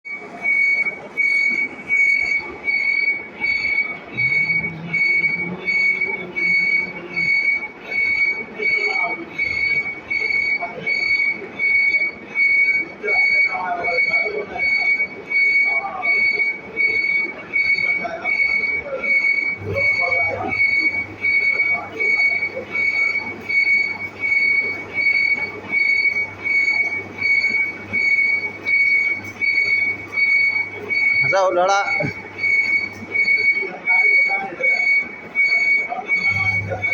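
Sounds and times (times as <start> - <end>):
steady machine noise: 0.1 - 36.9.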